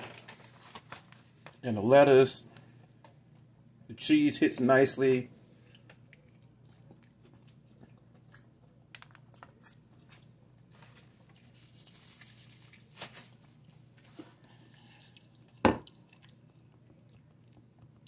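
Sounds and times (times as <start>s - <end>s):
low steady hum: 0.0s - 18.0s
chewing crispy sandwich: 5.4s - 18.0s.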